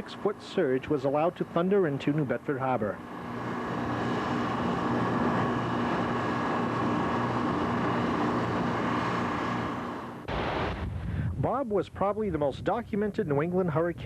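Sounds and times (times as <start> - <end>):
steady engine drone: 0.0 - 11.4
rushing noise: 3.0 - 11.5.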